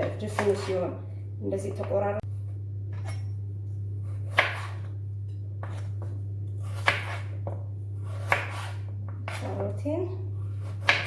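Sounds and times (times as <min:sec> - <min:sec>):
low hum: 0:00.0 - 0:08.1
knife chopping on cutting board: 0:04.1 - 0:04.9, 0:05.6 - 0:09.6, 0:10.5 - 0:11.0.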